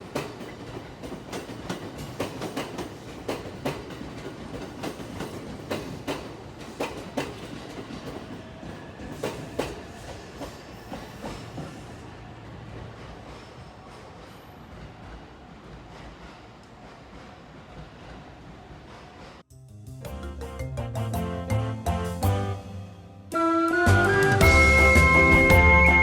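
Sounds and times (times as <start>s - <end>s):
train wheels clacking over rail joints: 0.0s - 12.0s
train rumble: 0.0s - 19.5s.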